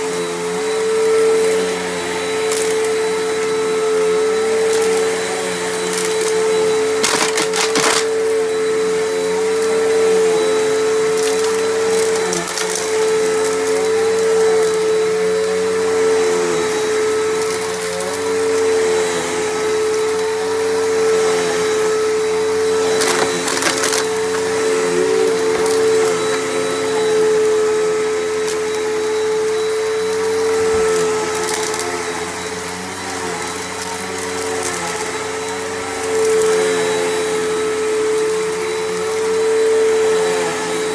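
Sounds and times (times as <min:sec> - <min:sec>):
vacuum cleaner motor whine: 0:00.0 - 0:40.9
debris crackling in vacuum: 0:06.9 - 0:08.4, 0:22.6 - 0:27.5.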